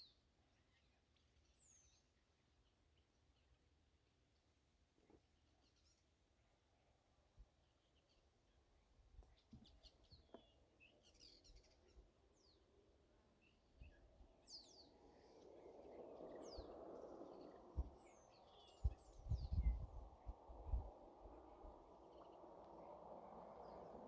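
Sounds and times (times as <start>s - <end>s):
birds chirping: 13.4s - 24.0s
passing car road noise: 20.1s - 24.0s.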